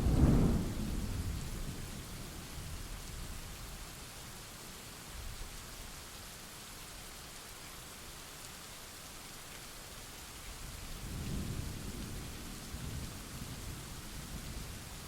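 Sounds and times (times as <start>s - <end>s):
thunder rumbling: 0.0s - 1.8s
steady rain: 0.0s - 15.0s.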